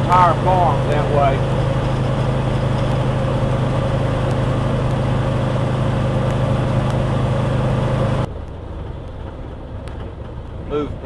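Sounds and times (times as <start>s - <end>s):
road noise: 0.0s - 11.0s
truck engine drone: 0.0s - 11.0s.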